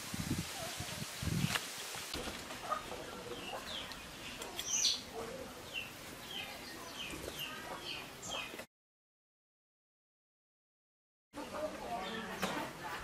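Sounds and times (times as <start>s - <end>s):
small birds chirping: 2.6s - 8.7s, 11.4s - 13.0s.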